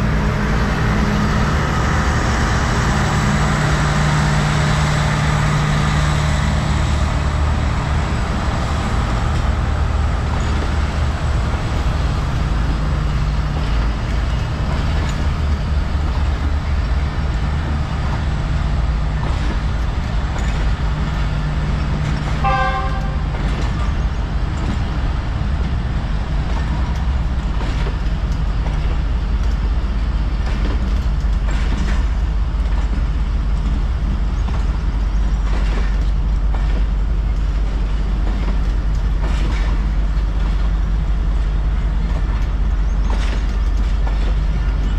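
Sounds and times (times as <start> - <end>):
locomotive engine drone: 0.0 - 44.9
short horn toot: 22.4 - 23.2.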